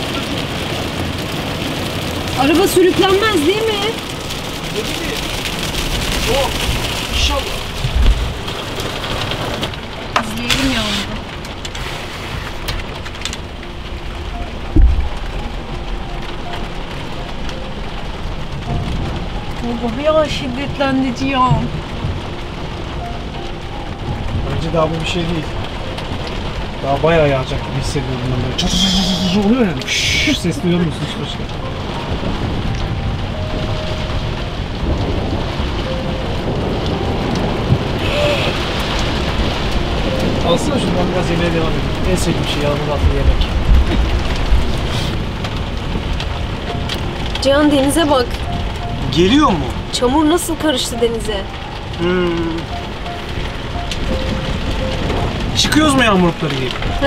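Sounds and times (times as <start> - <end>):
heavy rain on roof: 0.0 - 57.0
low thump: 14.7 - 15.2.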